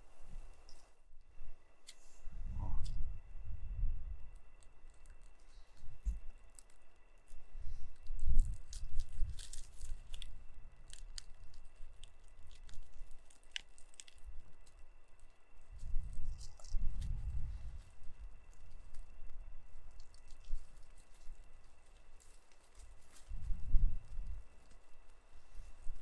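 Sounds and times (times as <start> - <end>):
sharp crackles: 4.2 - 26.0
rustling: 4.3 - 26.0.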